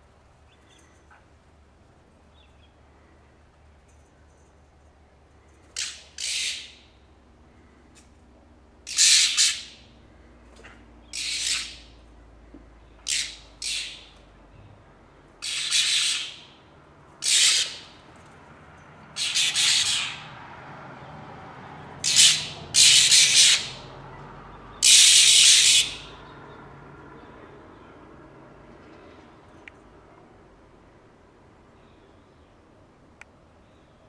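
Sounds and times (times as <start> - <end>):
birds squawking harshly: 5.7 - 7.0, 8.8 - 10.2, 11.0 - 12.0, 13.0 - 14.2, 15.4 - 16.6, 17.2 - 18.0, 19.1 - 20.4, 22.0 - 23.9, 24.8 - 26.2.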